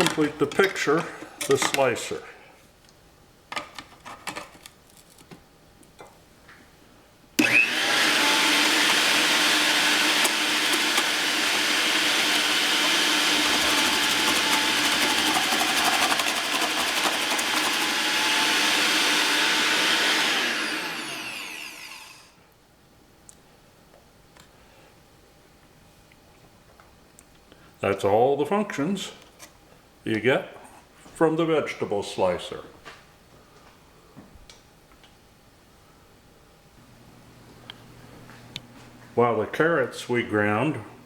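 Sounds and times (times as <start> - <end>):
electric motor running: 7.4 - 22.3.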